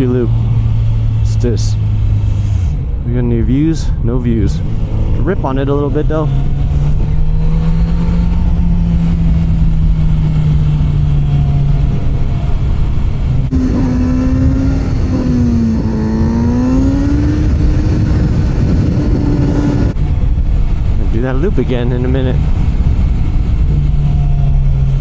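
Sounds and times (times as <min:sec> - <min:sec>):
motorcycle engine revving: 0:04.6 - 0:20.0.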